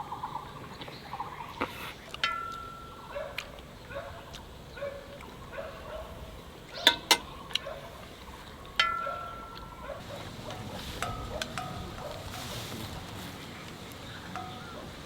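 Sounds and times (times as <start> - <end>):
dog barking faintly: 3.1 - 6.3, 9.0 - 12.6.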